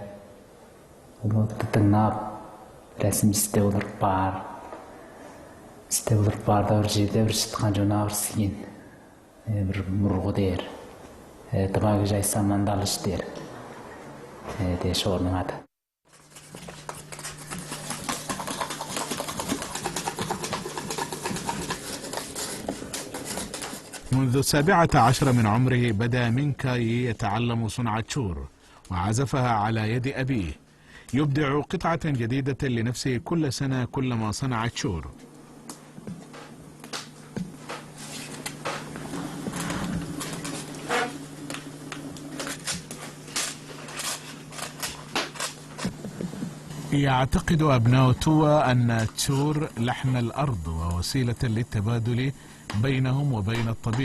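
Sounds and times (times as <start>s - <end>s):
steady low hum: 0.0s - 54.0s
rapid clicking and tapping: 16.6s - 23.8s.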